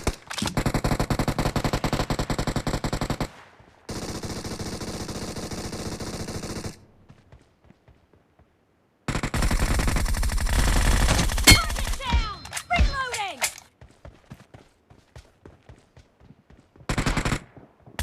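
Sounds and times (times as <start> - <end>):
video game automatic gunfire: 0.0 - 6.8, 9.1 - 12.1, 16.9 - 18.0.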